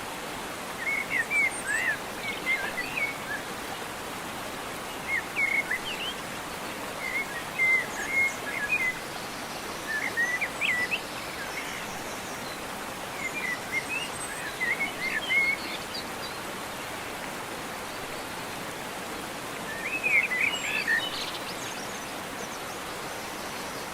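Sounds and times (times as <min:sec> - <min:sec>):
birds twittering: 0:19.7 - 0:23.9.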